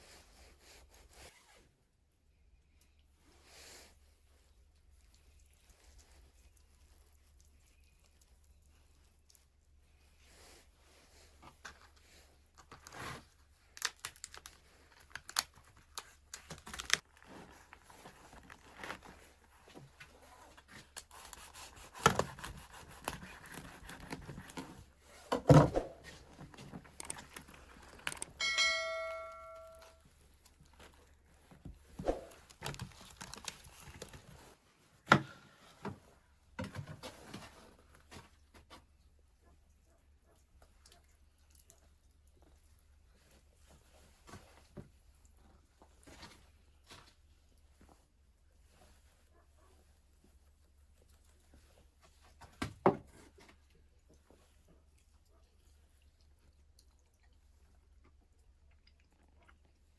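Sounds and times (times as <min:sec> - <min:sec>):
rustling: 0:02.8 - 0:39.3
short ringing tone: 0:28.4 - 0:30.0.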